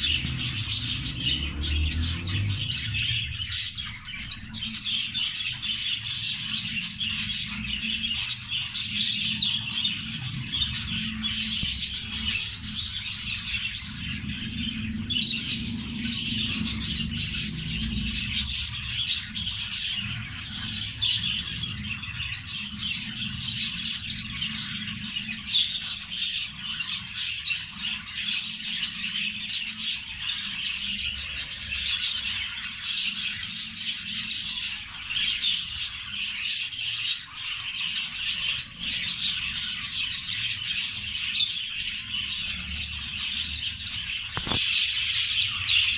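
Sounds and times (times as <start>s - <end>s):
steady low hum: 0.0s - 26.1s
budgerigars chattering: 0.0s - 45.9s.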